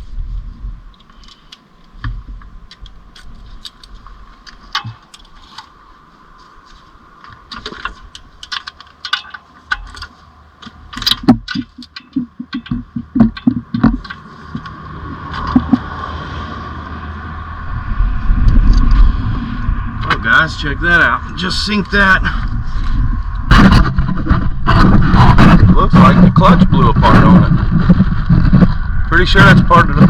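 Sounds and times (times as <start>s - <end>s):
quick knocks: 11.0s - 14.6s.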